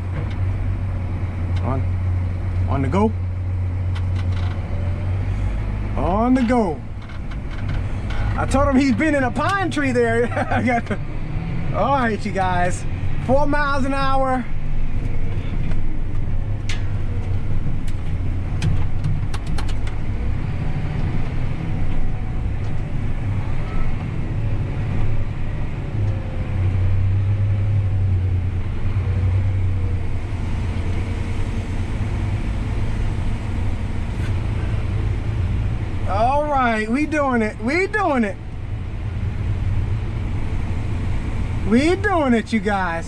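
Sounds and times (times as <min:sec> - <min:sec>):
tractor engine droning: 0:00.0 - 0:43.0.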